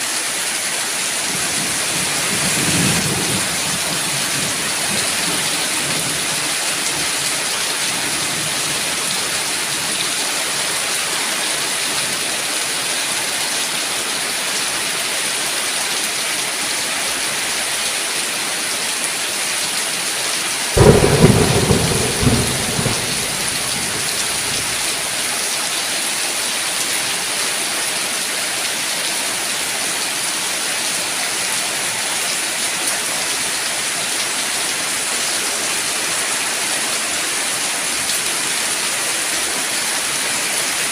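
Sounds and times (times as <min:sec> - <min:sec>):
heavy rain hiss: 0:20.6 - 0:25.5
thunderclap rumbling: 0:20.8 - 0:25.1.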